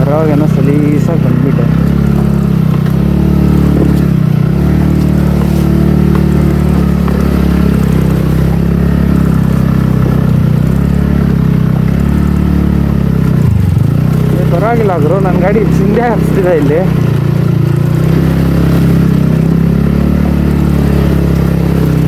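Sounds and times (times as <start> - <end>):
scooter engine under throttle: 0.0 - 22.0.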